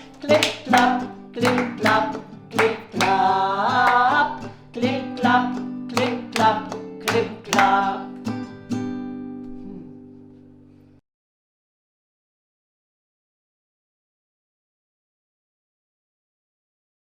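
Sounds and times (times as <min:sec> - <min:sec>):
acoustic guitar strumming chords: 0:00.0 - 0:11.0
person singing a held note: 0:09.6 - 0:10.2.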